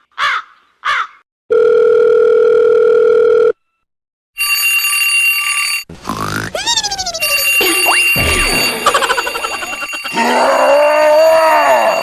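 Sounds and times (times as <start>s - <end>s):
telephone dial tone beep: 1.5s - 3.6s
telephone ringing tone: 1.5s - 3.6s, 4.4s - 5.9s.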